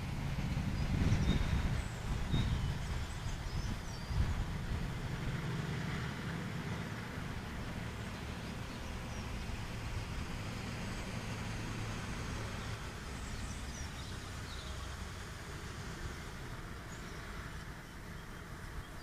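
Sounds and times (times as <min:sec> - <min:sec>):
outdoor rumble and hiss: 0:00.0 - 0:19.0.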